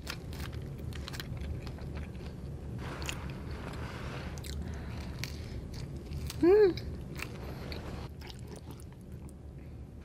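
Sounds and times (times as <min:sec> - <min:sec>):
chewing and mouth sounds: 0:00.0 - 0:09.5
steady low hum: 0:00.0 - 0:10.0.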